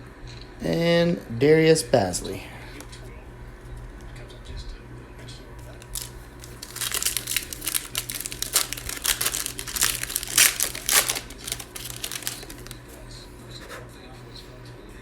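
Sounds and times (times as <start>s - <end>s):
plastic wrapper crinkling: 5.6s - 13.0s.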